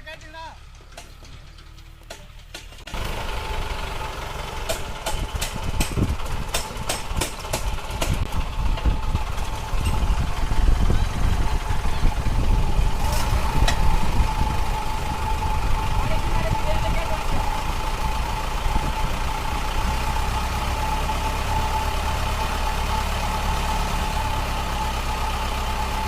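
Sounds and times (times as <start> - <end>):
diesel engine rumbling: 0.0 - 26.0.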